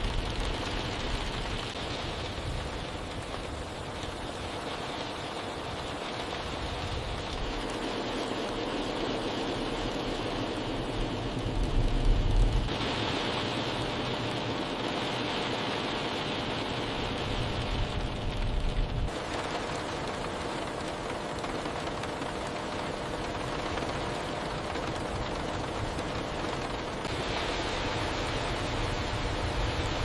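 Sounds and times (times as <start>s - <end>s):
heavy rain hissing: 0.0s - 20.8s, 23.3s - 30.0s
low rumbles: 7.0s - 12.8s.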